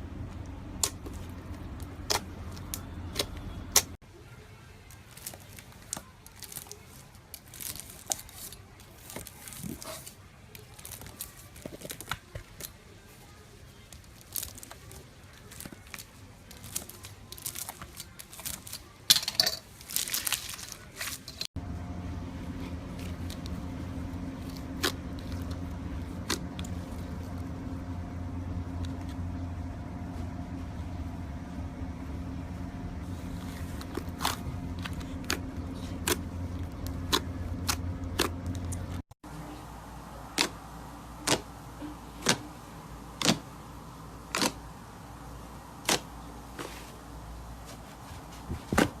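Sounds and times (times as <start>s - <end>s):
steady low hum: 0.0s - 4.0s, 21.3s - 49.0s.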